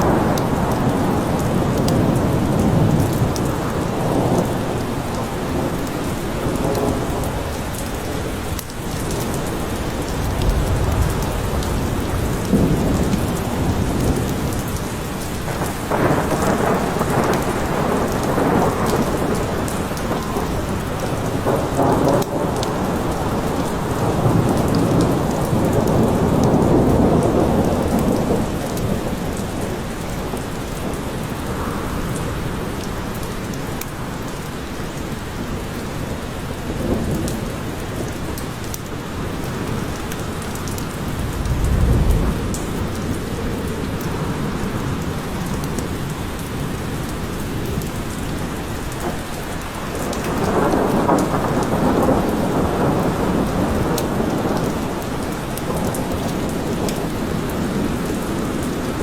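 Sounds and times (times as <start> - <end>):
steady rain falling: 0.0 - 59.0
low rolling thunder: 8.5 - 32.2, 39.3 - 47.1, 47.7 - 59.0.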